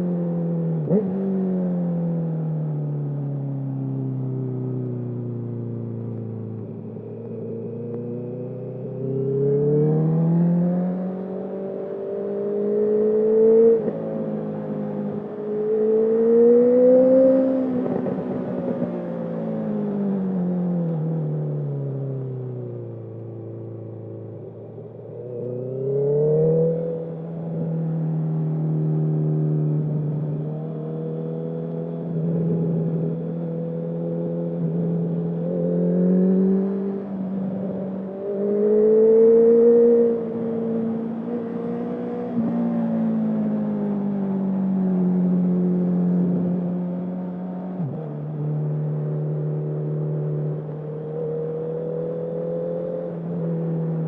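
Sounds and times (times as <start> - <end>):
motorcycle engine revving: 29.5 - 54.0.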